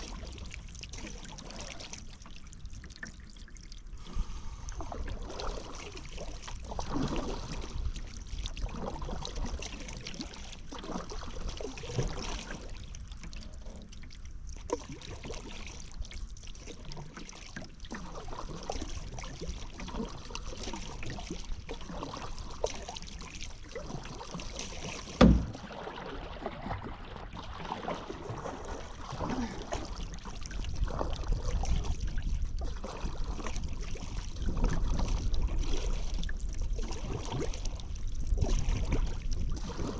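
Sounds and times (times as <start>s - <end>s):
paddle splashing in water: 0.0s - 39.9s
water trickling off paddle: 0.0s - 39.9s
sharp knock: 25.2s - 25.6s.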